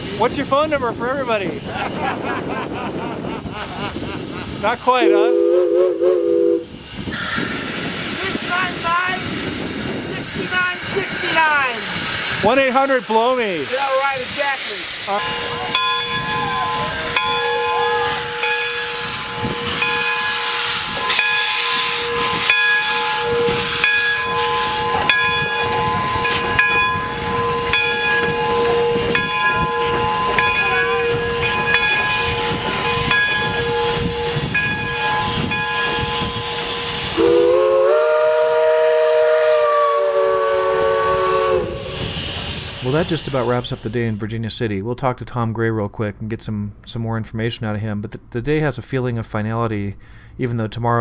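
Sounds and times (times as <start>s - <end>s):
steam locomotive hissing: 0.0s - 44.6s
steam whistle chord: 5.0s - 6.8s, 15.2s - 42.2s.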